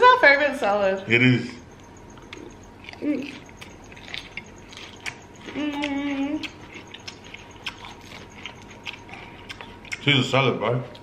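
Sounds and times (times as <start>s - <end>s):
chewing crunchy salad: 1.7s - 11.0s
person humming mm: 5.5s - 6.5s.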